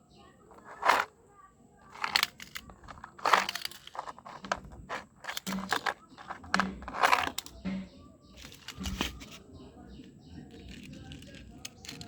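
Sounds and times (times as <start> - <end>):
toy vehicles scraping through sand: 0.5 - 1.1, 1.9 - 7.5, 10.5 - 12.0.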